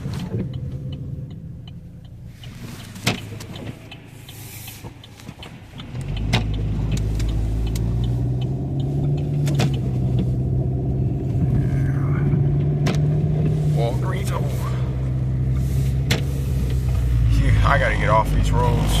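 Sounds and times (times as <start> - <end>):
car engine hum: 0.0 - 19.0
road rumble: 0.0 - 19.0
small regular ticking: 0.3 - 14.2.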